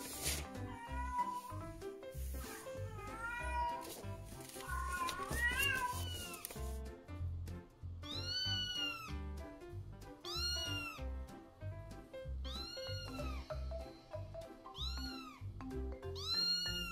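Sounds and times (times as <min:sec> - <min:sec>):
cat meowing: 0:00.6 - 0:01.7, 0:02.4 - 0:04.0, 0:04.6 - 0:06.4, 0:08.0 - 0:09.1, 0:10.2 - 0:11.0, 0:12.4 - 0:13.4, 0:14.8 - 0:15.4, 0:16.2 - 0:16.9.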